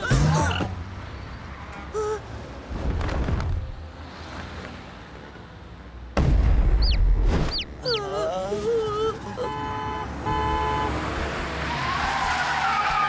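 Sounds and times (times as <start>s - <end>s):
wavering pitched cry: 7.6s - 8.2s.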